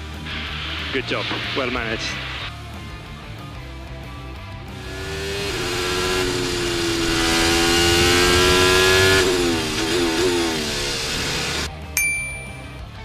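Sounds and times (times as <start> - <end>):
race car engine revving: 4.7 - 11.7.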